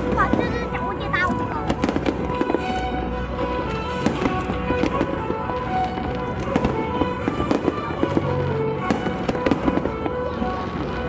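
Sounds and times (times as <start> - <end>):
fireworks bangs and crackles: 0.0 - 11.0
music playing: 0.0 - 11.0.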